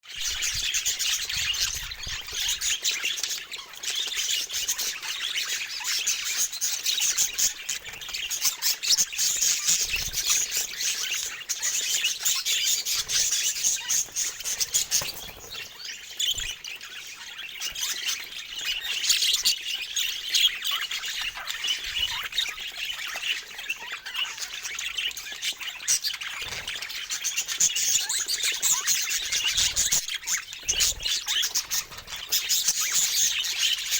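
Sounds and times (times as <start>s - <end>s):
budgerigars chirping: 0.1s - 33.9s.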